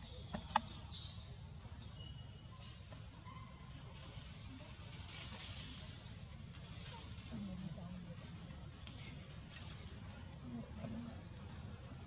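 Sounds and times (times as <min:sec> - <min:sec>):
bird chirping: 0:00.0 - 0:04.5
low outdoor rumble: 0:00.0 - 0:12.0.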